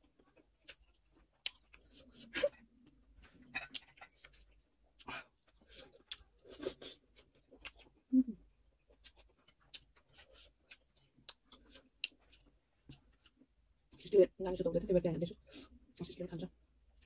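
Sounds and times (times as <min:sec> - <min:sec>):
wet chewing sounds: 0:00.0 - 0:08.1, 0:08.8 - 0:14.0.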